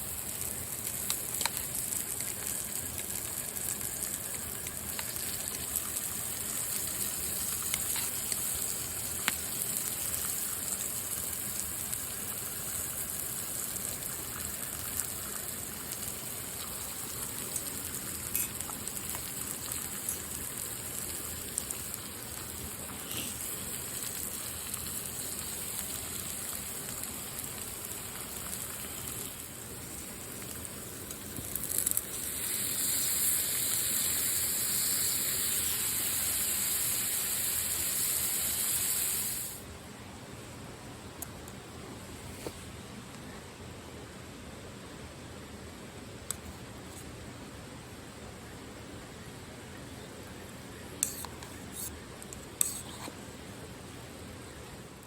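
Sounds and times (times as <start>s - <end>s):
drip-like ticks: 0.3s - 8.4s.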